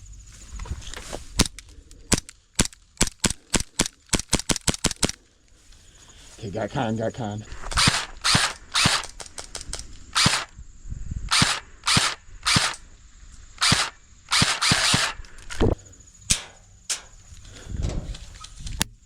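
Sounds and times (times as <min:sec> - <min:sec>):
airsoft guns firing: 0:02.1 - 0:05.2, 0:07.6 - 0:10.5, 0:11.3 - 0:12.8, 0:13.6 - 0:15.2.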